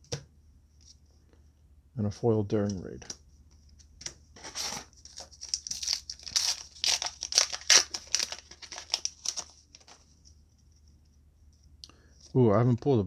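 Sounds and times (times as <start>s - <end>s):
foil wrapper crinkling and tearing: 4.4s - 10.2s.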